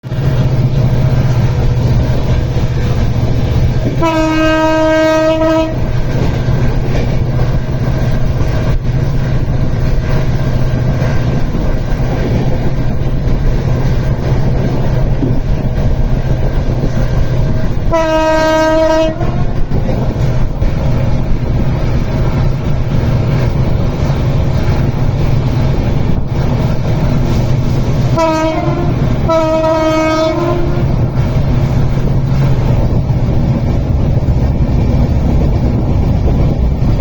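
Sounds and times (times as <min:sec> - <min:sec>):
horn blast: 0:03.9 - 0:05.9, 0:17.9 - 0:19.6, 0:28.2 - 0:31.0
vehicle rumble: 0:19.2 - 0:37.0.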